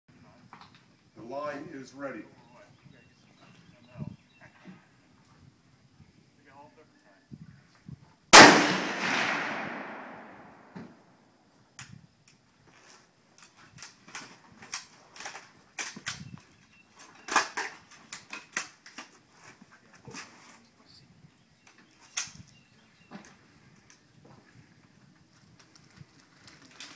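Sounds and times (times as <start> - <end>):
rifle shot echoing: 8.3 - 11.1.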